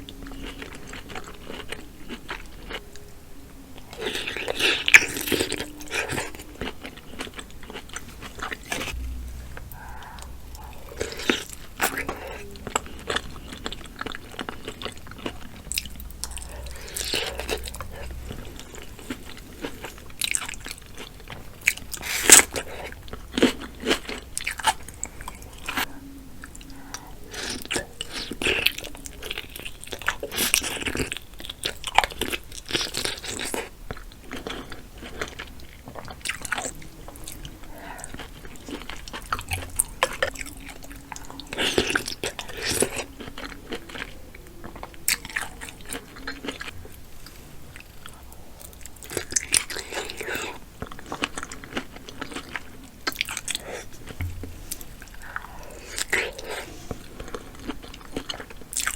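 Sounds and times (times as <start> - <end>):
wet chewing: 0.0 - 58.9.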